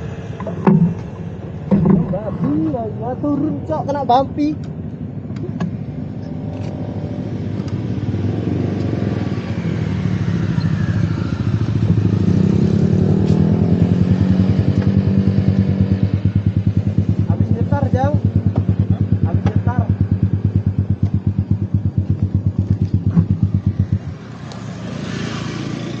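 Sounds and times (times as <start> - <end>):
motorcycle engine revving: 5.7 - 26.0.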